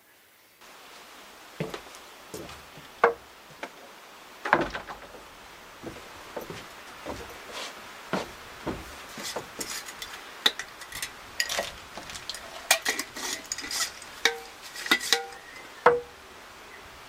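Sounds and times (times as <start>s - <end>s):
hard objects clinking together: 9.2s - 15.5s.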